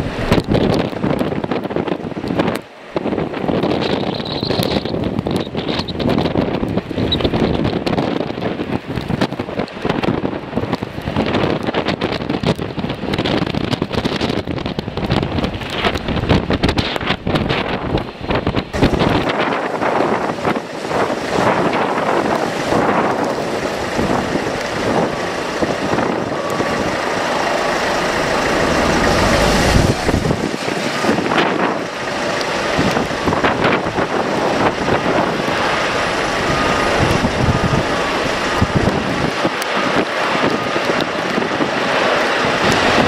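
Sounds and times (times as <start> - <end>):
jet engines roaring: 0.0 - 11.9, 13.6 - 43.0
wind buffeting microphone: 0.0 - 43.0.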